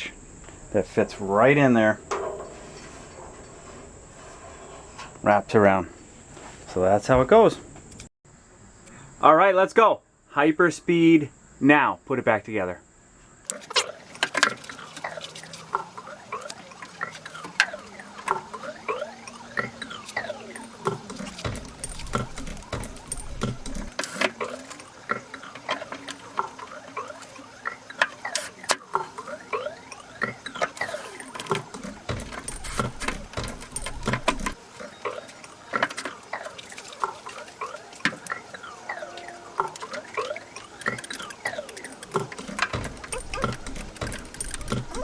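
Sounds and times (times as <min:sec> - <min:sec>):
high chirpy squeaks: 0:00.9 - 0:05.4, 0:13.4 - 0:45.0
tools and parts clattering: 0:01.7 - 0:06.8, 0:13.5 - 0:45.0
sped up clicks and taps: 0:13.5 - 0:45.0.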